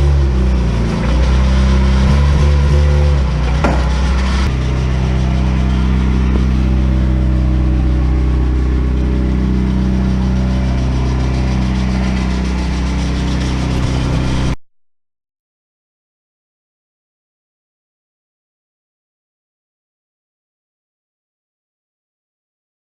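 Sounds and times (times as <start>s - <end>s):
car engine idling: 0.0s - 14.6s.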